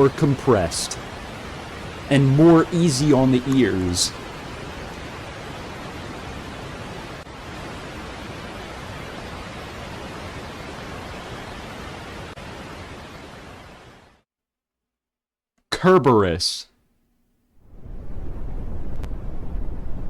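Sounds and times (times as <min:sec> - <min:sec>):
steady white noise hiss: 0:00.0 - 0:14.2.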